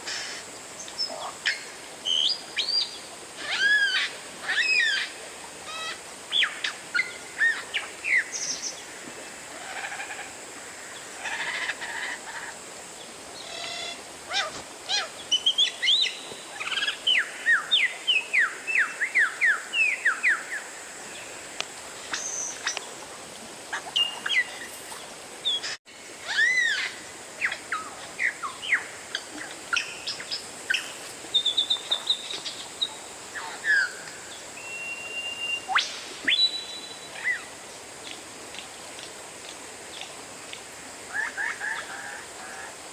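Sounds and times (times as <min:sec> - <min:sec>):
bird singing: 0:34.6 - 0:37.4.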